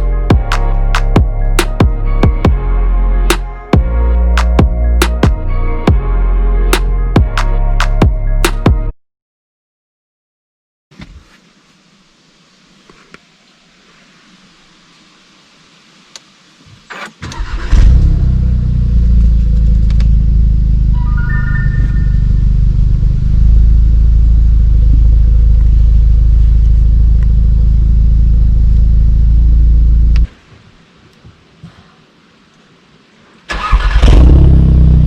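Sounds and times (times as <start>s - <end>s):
car engine starting and idling: 16.9s - 30.3s, 33.5s - 35.0s.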